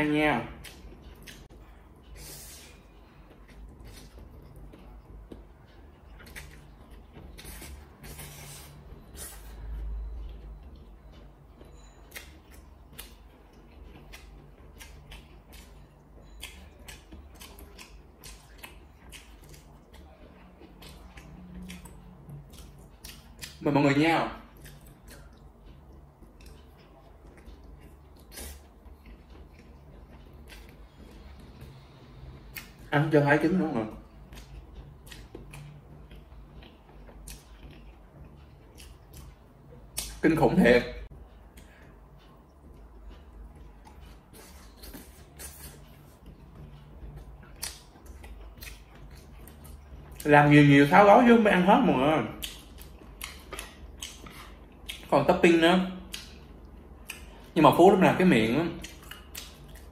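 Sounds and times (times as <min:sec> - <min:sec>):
faint low hum: 0:00.0 - 0:59.9
person chewing food: 0:00.4 - 0:50.6, 0:52.2 - 0:57.9, 0:58.6 - 0:59.9
wet mouth smacks and clicks: 0:47.6 - 0:48.9, 0:52.4 - 0:55.1.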